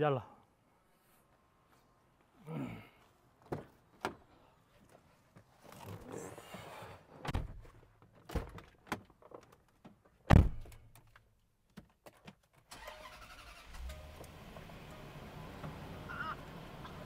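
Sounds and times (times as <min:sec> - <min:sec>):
car engine starting and idling: 0:12.7 - 0:17.0.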